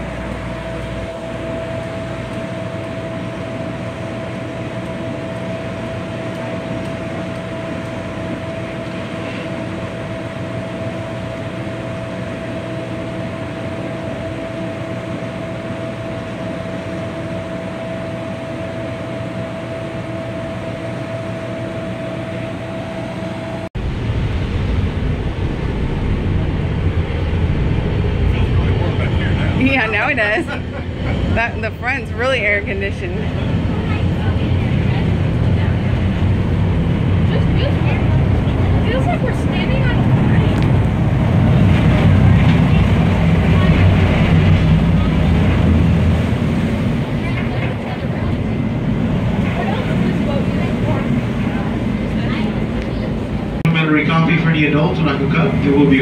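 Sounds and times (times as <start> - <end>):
boat machinery hum: 0.0 - 56.0
steady whining tone: 0.0 - 56.0
rough low rumble: 23.7 - 56.0.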